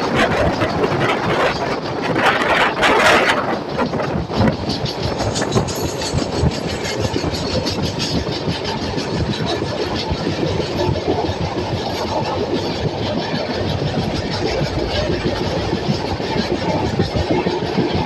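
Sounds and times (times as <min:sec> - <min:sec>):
train rumbling: 0:00.0 - 0:18.0
wheels clattering over rails: 0:00.0 - 0:18.0.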